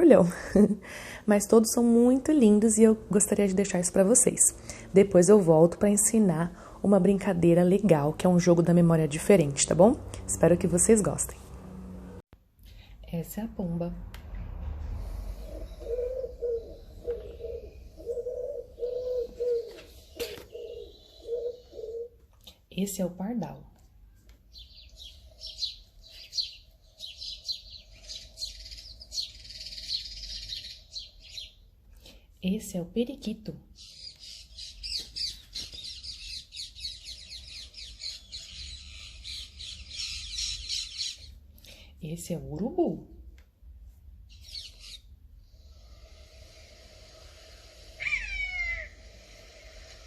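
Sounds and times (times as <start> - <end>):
pigeon cooing: 15.4 - 22.2, 47.4 - 50.0
parakeet chattering: 44.4 - 45.1, 47.8 - 49.8.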